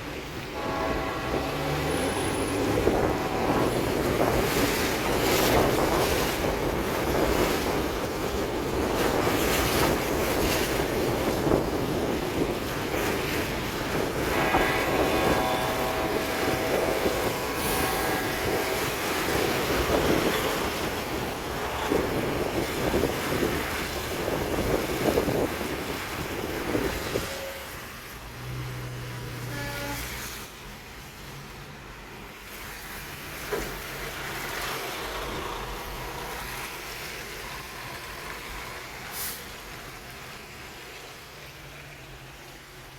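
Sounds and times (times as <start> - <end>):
rushing wind: 0.0 - 29.5
car road noise: 0.0 - 42.9
steady pitched tone: 14.1 - 23.5.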